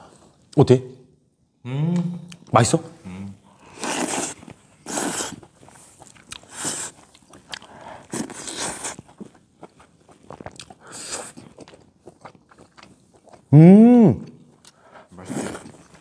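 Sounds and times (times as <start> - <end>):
chewing and biting: 3.8 - 13.5.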